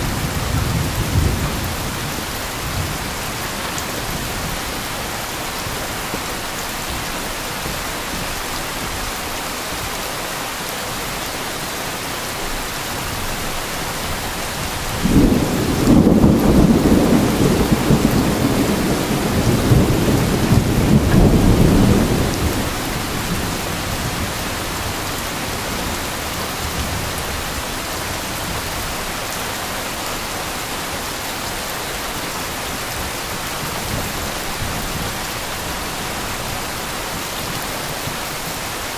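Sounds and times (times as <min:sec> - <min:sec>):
heavy rain: 0:00.0 - 0:38.9
thunder rumbling: 0:14.5 - 0:28.6.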